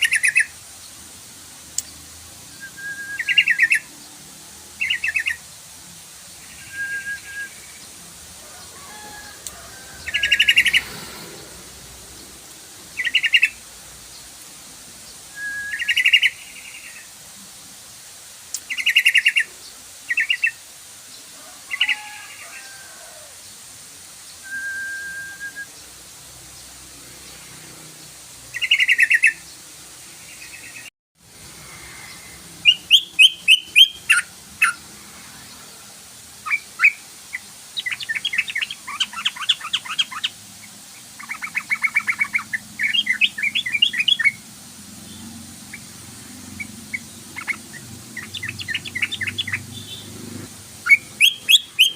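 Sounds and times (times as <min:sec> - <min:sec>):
bulbul chattering calls: 0:00.0 - 0:00.6, 0:03.2 - 0:03.9, 0:04.8 - 0:05.4, 0:08.9 - 0:11.6, 0:12.9 - 0:13.6, 0:18.6 - 0:19.5, 0:28.6 - 0:29.4, 0:31.8 - 0:34.8, 0:36.4 - 0:44.4, 0:46.6 - 0:50.2, 0:50.8 - 0:51.9.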